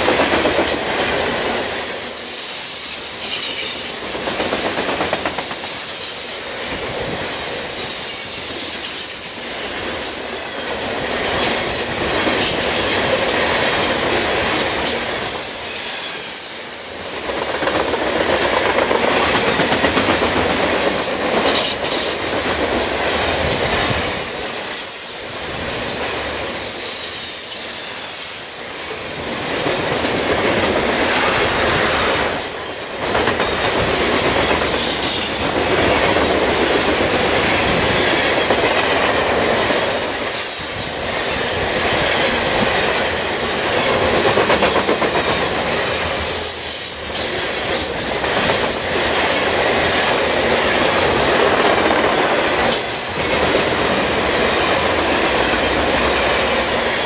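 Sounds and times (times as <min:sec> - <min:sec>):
freight train rolling past: 0:00.0 - 0:57.0
high-pitched wheel squeal: 0:24.1 - 0:28.7.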